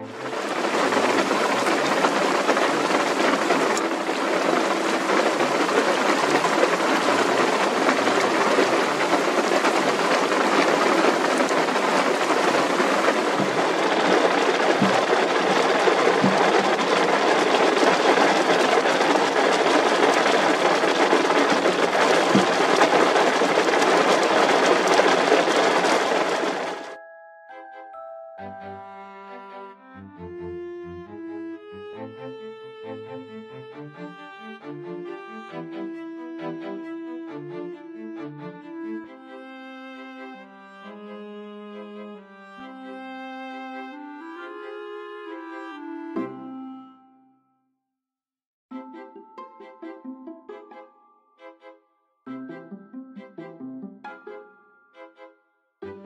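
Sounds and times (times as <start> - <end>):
heavy rain on a car roof: 0.0 - 27.0.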